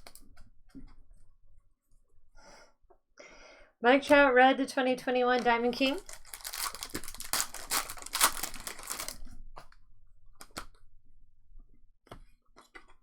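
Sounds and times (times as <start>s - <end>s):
cards being handled: 5.4s - 9.2s
wrappers crinkling and tearing: 5.8s - 9.4s.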